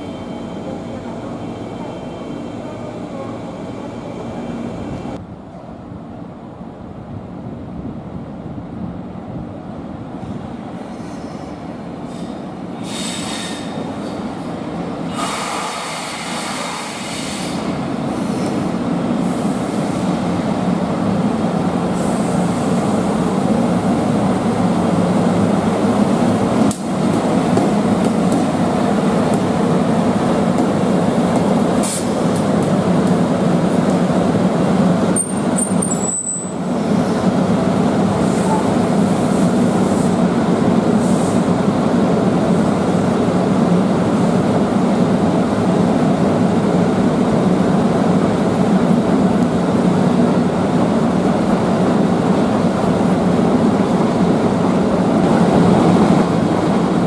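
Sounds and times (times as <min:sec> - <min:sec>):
train wheels rumbling on rail: 0:00.0 - 0:57.0
high-pitched wheel squeals: 0:35.1 - 0:36.6.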